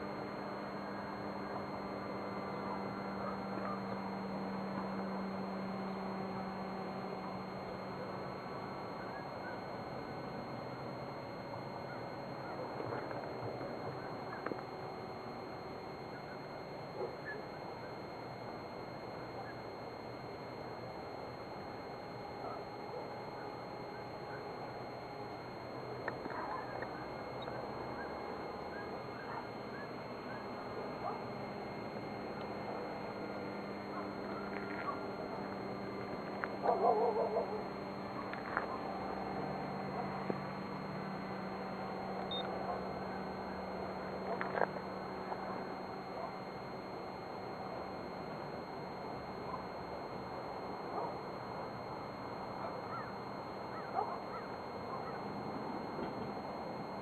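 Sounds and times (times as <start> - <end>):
steady outdoor hiss: 0.0 - 57.0.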